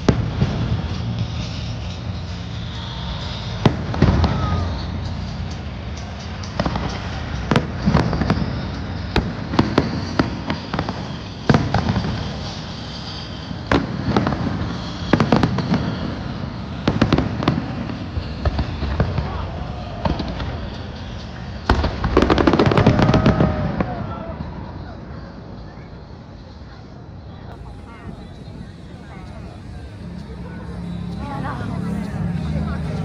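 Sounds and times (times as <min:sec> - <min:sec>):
crowd rumble: 0:27.5 - 0:33.0.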